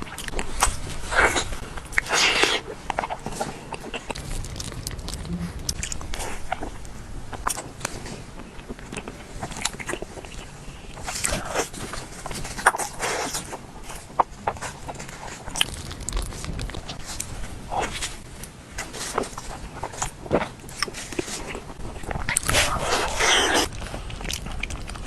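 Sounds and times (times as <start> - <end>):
person chewing wetly: 0.0 - 18.1, 18.8 - 25.0.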